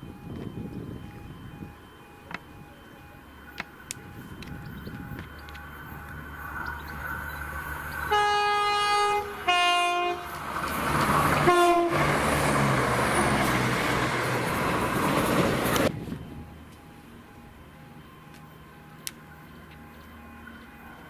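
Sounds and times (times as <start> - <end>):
passing train rushing: 0.0 - 21.0
train two-tone horn: 8.0 - 13.6.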